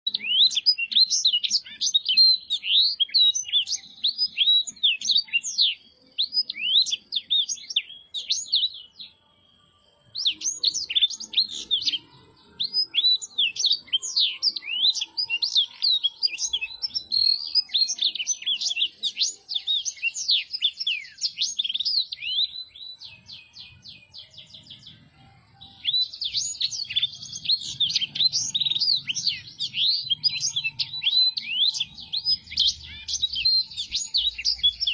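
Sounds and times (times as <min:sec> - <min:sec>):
canary singing twittering song: 0:00.0 - 0:34.9.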